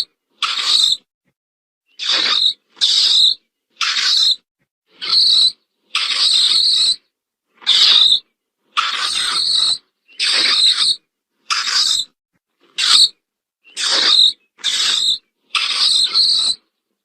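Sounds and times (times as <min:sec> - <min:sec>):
mole chittering calls: 0:00.0 - 0:01.0, 0:01.9 - 0:04.4, 0:05.0 - 0:07.0, 0:07.7 - 0:08.2, 0:08.8 - 0:12.1, 0:12.8 - 0:13.1, 0:13.7 - 0:16.6.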